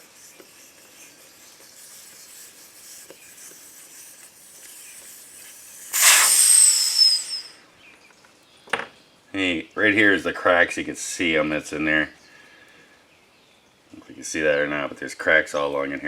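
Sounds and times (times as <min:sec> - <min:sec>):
air hissing from tire valve: 0:04.5 - 0:07.6.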